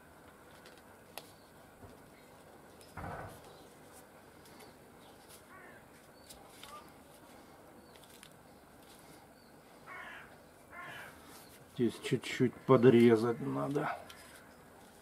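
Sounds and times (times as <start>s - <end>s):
crow-like caw: 5.5s - 5.8s, 9.9s - 11.3s.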